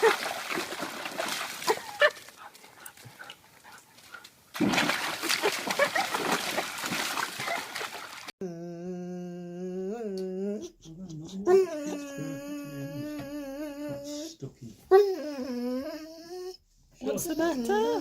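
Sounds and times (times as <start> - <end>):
dog splashing in water: 0.0 - 3.2, 4.5 - 8.3.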